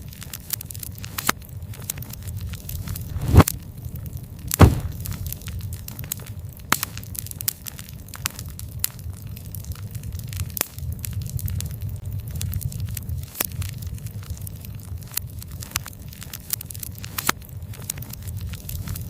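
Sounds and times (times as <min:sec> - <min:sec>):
wood fire crackling: 0:00.0 - 0:19.0
loud pops from fire: 0:02.7 - 0:03.6, 0:04.5 - 0:05.8.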